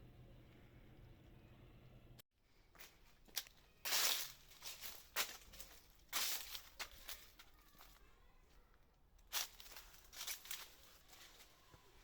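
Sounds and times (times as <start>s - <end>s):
dry rustling and crunching: 2.8s - 12.0s.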